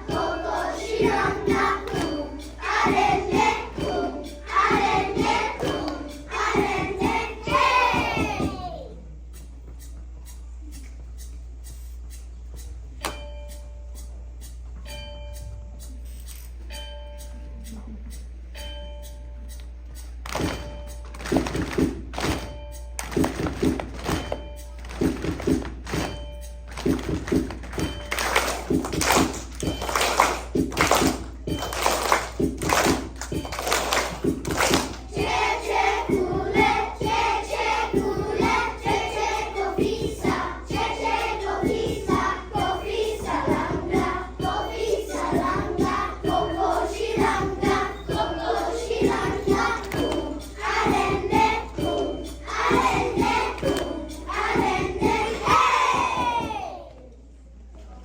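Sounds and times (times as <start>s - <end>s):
young children singing: 0.0s - 9.1s, 33.6s - 57.0s
rhythmic claps: 0.0s - 16.8s, 17.6s - 56.8s
backing music with steady beat: 0.0s - 56.8s.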